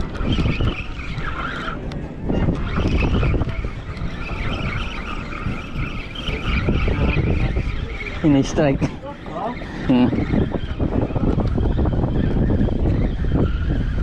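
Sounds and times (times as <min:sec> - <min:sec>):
boat engine rumbling: 0:00.0 - 0:14.0
high whine: 0:00.0 - 0:14.0
water noise: 0:00.0 - 0:14.0
wind: 0:00.0 - 0:14.0.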